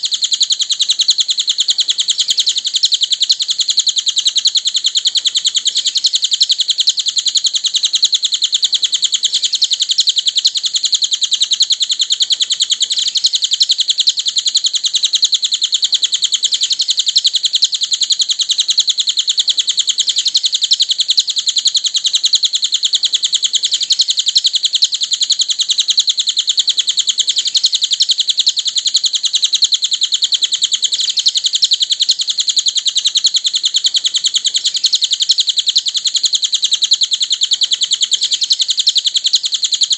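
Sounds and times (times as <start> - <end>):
bird chattering trill: 0.0 - 39.9.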